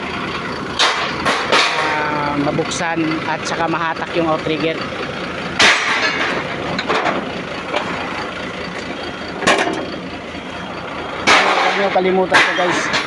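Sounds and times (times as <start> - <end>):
truck engine idling: 0.0 - 13.0
sharp metal clanks: 0.8 - 2.9, 5.6 - 8.3, 9.3 - 10.0, 11.2 - 13.0.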